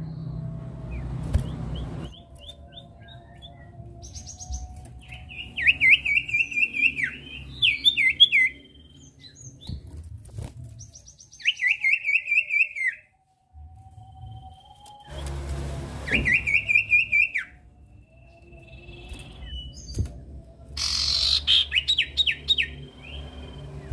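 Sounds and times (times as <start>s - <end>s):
bird singing looping notes: 0.0s - 9.8s, 10.9s - 13.1s, 16.1s - 23.9s
faint high bird calls: 20.8s - 23.9s.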